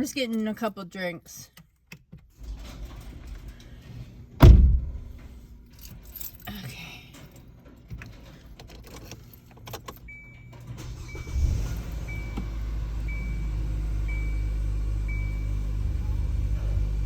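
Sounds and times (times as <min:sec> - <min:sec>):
dashboard warning chime beeping: 0:09.8 - 0:16.6
car engine starting: 0:10.0 - 0:17.0
car engine idling: 0:10.6 - 0:17.0.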